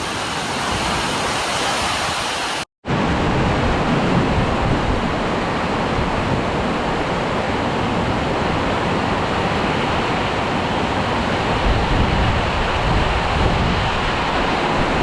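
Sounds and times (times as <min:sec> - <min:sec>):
heavy rain hissing: 0:00.0 - 0:02.7
wind gusting against microphone: 0:00.0 - 0:15.0.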